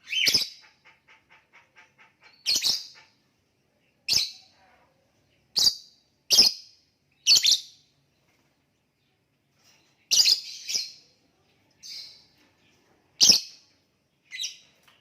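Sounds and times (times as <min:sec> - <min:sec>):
bird high-pitched chirps: 0:00.0 - 0:00.7, 0:02.0 - 0:03.2, 0:05.5 - 0:07.8, 0:10.1 - 0:11.1.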